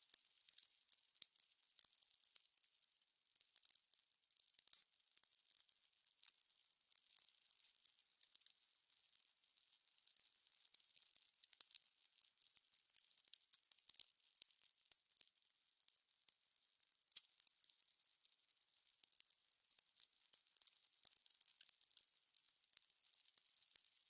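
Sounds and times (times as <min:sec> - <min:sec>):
fire crackling: 0:17.1 - 0:24.0.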